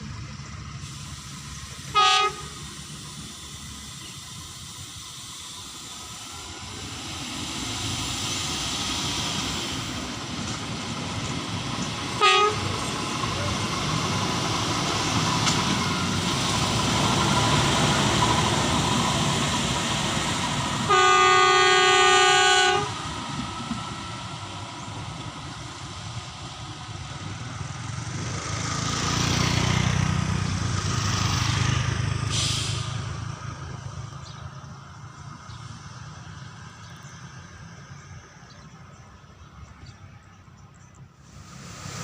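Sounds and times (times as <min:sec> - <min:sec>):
train rail noise: 0:00.0 - 0:42.0
train horn blast: 0:01.8 - 0:02.8, 0:12.1 - 0:12.9, 0:20.7 - 0:23.1.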